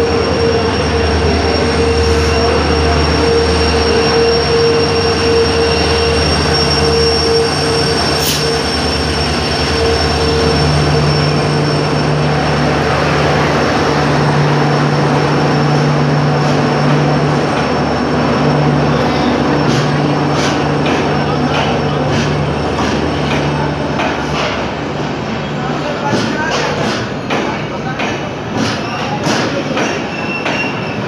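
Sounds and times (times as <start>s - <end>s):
wheel and brake squeal: 0.0s - 13.6s, 16.4s - 23.7s, 28.7s - 31.0s
diesel locomotive engine: 0.0s - 31.0s.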